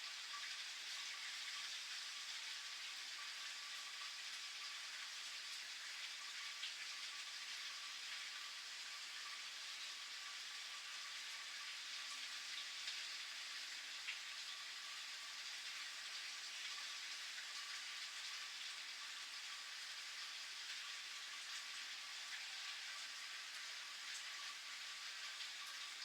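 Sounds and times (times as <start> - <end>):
steady rain hiss: 12.8 - 26.0.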